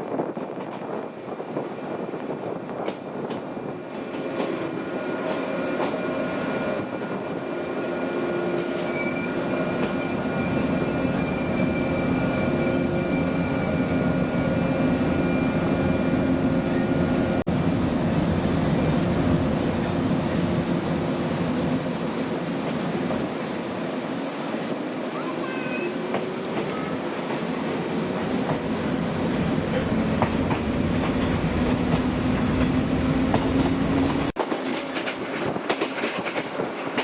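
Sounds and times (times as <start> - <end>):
electric train running on rails: 0.0 - 37.0
high-pitched squealing: 8.7 - 17.0.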